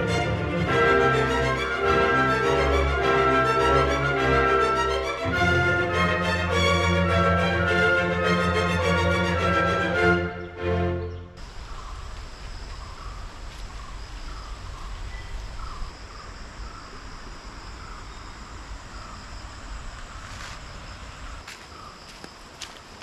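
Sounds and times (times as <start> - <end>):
background music: 0.0 - 11.4
crickets shrilling: 11.4 - 23.0
short insect chirp: 11.4 - 23.0.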